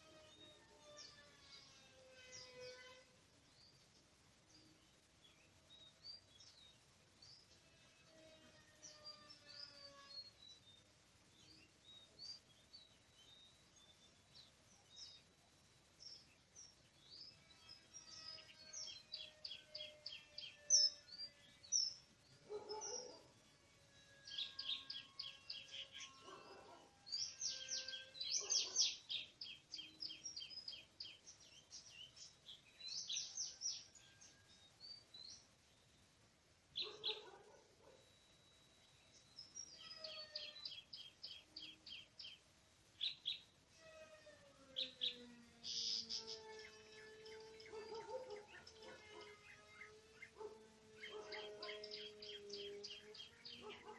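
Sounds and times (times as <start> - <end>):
bird chirping and singing: 0.1 - 36.0, 36.8 - 43.6, 44.6 - 53.9
lower harsher bird calls: 36.8 - 42.4, 43.0 - 53.9.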